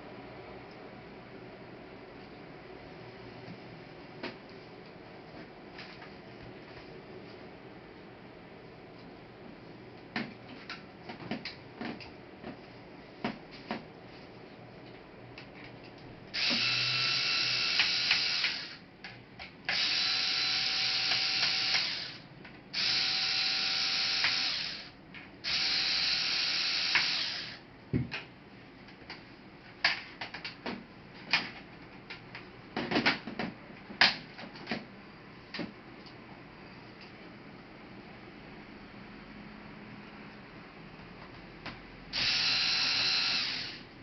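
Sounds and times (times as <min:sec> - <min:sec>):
electric screwdriver running: 0:16.4 - 0:18.8, 0:19.7 - 0:22.2, 0:22.8 - 0:27.6, 0:42.1 - 0:43.8.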